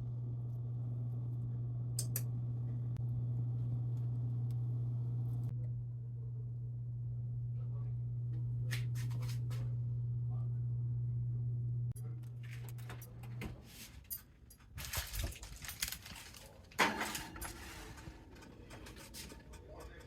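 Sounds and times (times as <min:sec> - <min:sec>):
steady low hum: 0:00.0 - 0:20.0
kitchen utensils and dishes clattering: 0:13.6 - 0:20.0
scraping rattles: 0:14.6 - 0:20.0.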